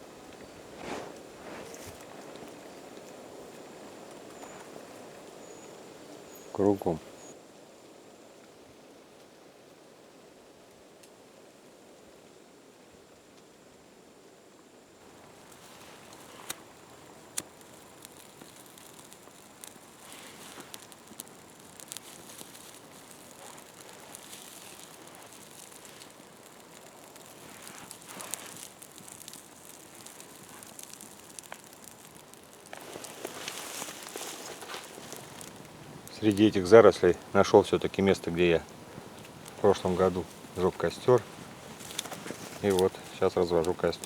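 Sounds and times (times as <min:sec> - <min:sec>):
twigs rustling and snapping: 0:15.0 - 0:44.0
sharp cracks: 0:15.1 - 0:44.0.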